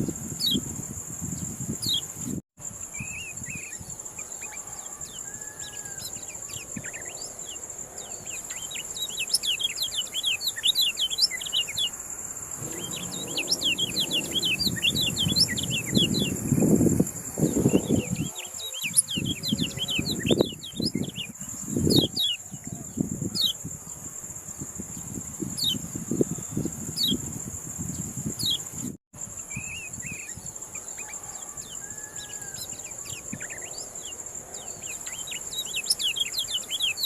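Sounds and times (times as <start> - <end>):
high insect buzz: 0.0 - 22.2
low rumble: 12.6 - 18.0
bird singing fast chirps: 12.6 - 22.5.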